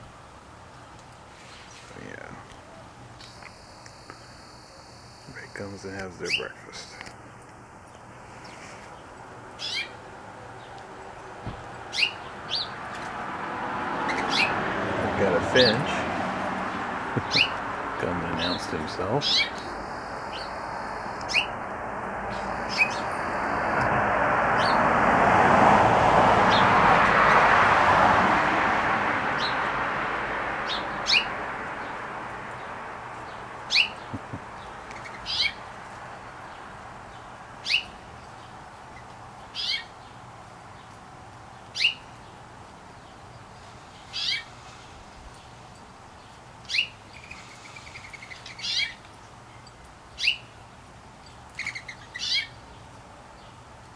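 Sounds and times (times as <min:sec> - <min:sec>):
broad rushing noise: 0:08.1 - 0:35.0
songbird sharp downward chirp: 0:17.2 - 0:17.6, 0:18.4 - 0:21.6, 0:22.3 - 0:23.3.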